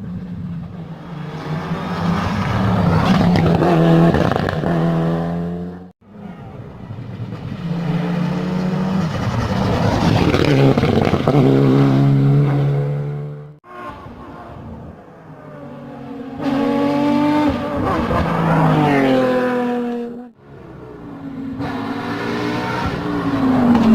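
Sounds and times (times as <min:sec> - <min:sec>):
race car engines at high revs: 0:07.1 - 0:23.9.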